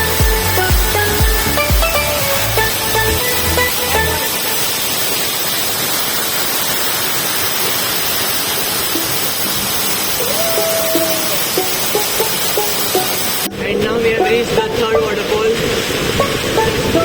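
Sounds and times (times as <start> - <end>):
held musical tone: 0.0 - 4.8, 10.5 - 17.0
electronic dance music: 0.0 - 5.2
waterfall roaring: 0.0 - 17.0.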